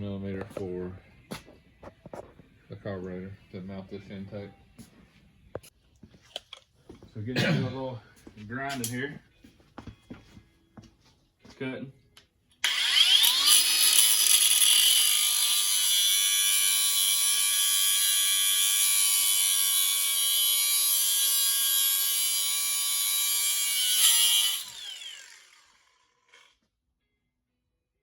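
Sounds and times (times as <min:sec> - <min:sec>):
grinder cutting metal: 0:12.6 - 0:26.5.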